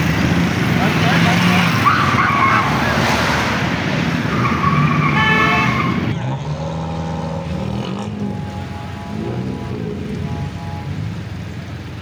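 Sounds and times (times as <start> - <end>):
car engines revving: 0.0 - 12.0
high steady tone: 8.0 - 11.4.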